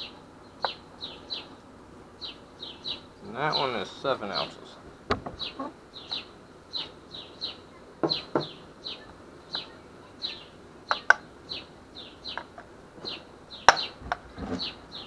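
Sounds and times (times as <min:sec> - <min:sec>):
small bird chirping: 0:00.0 - 0:15.0.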